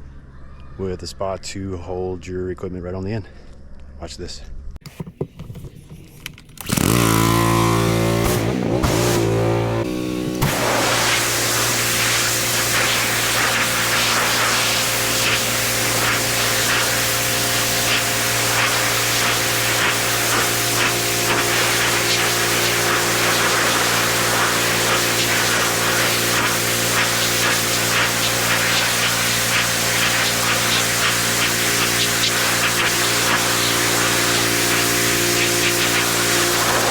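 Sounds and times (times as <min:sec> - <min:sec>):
pressure washer spray hiss: 0:07.9 - 0:09.8, 0:10.4 - 0:36.9
motor hum: 0:14.9 - 0:36.9.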